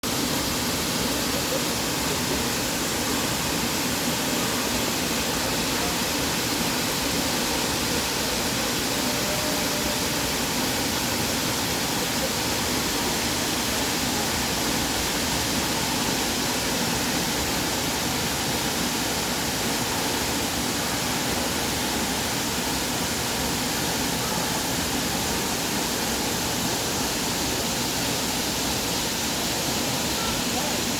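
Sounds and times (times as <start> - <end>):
waterfall rushing: 0.0 - 30.9.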